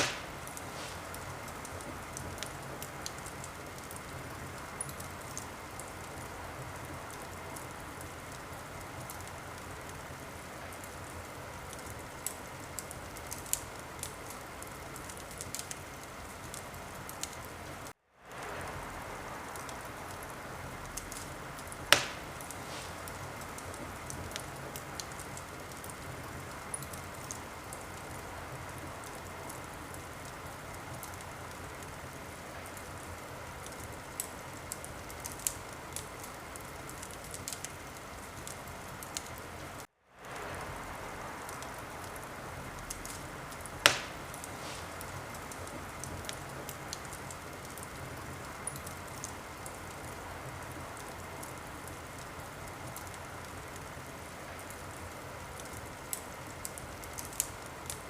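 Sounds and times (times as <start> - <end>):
loud sharp pop of fire: 0.0 - 1.8, 21.9 - 23.2, 43.8 - 45.6
wood fire hissing and crackling: 0.0 - 58.0.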